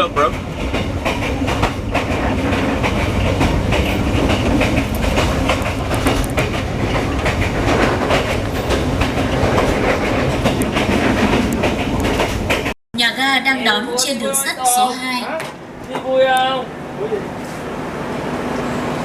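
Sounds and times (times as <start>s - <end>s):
train wheels clattering on rails: 0.0s - 12.8s.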